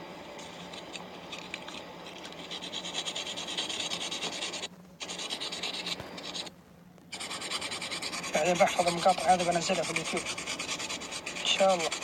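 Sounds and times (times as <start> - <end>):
sandpaper rubbing on metal: 2.4 - 6.5, 7.2 - 12.0.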